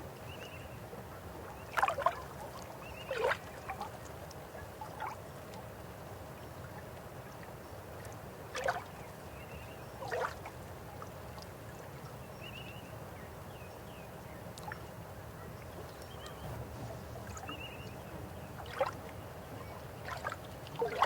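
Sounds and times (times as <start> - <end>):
river water flowing: 0.8 - 9.4, 14.5 - 21.0
water splashes or gurgles: 1.0 - 12.2, 14.5 - 16.4, 17.2 - 21.0.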